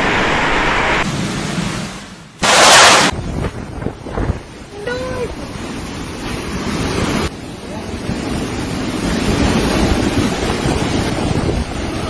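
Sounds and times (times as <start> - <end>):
storm wind buffeting microphone: 3.1 - 12.0.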